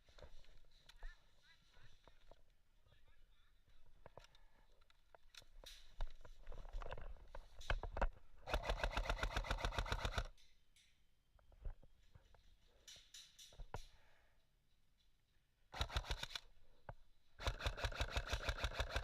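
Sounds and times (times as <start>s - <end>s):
airsoft gun full-auto burst: 8.5s - 10.3s, 15.8s - 16.4s, 17.4s - 19.0s.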